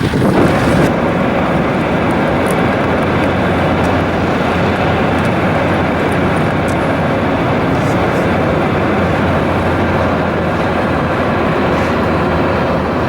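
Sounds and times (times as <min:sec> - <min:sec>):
moving train running noise: 0:00.0 - 0:13.0
faint clicks: 0:01.8 - 0:09.2.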